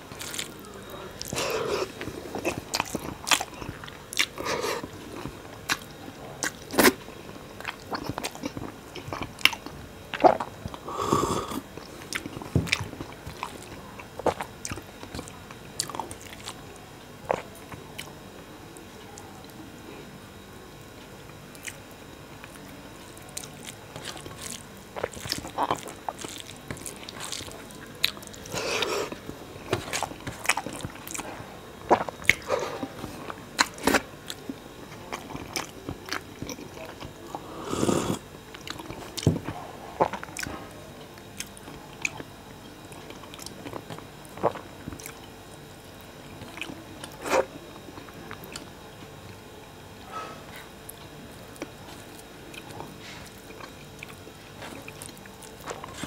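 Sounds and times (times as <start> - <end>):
person chewing with mouth clicks: 1.2 - 16.6, 17.2 - 18.1, 23.3 - 40.7, 41.3 - 45.5, 50.0 - 56.0.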